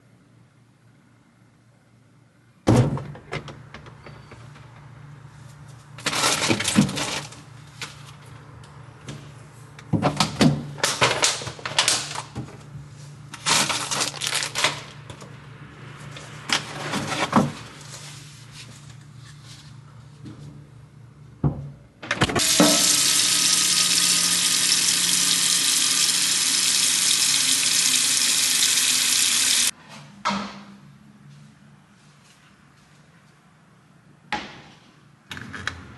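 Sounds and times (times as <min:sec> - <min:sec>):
tap water running into sink: 0:22.4 - 0:29.7.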